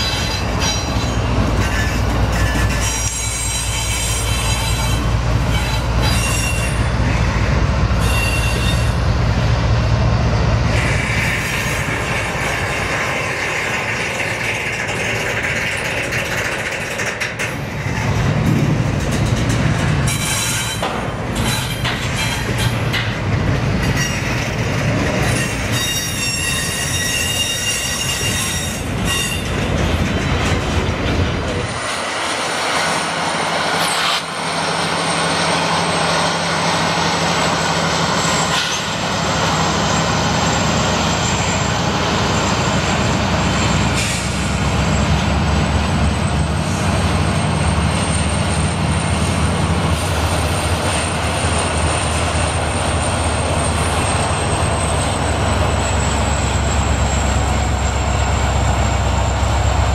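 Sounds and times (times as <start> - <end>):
high-pitched wheel squeal: 0.0 - 7.2, 8.0 - 9.0, 25.2 - 29.6
diesel locomotive engine drone: 0.0 - 59.9
train wheels clattering on rail joints: 0.0 - 59.9.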